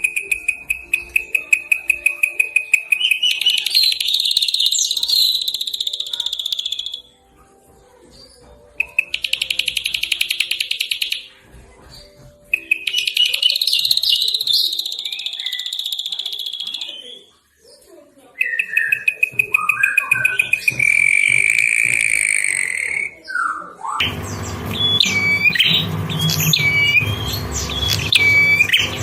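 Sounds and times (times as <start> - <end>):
songbird trilling: 12.5 - 17.2, 24.0 - 29.0.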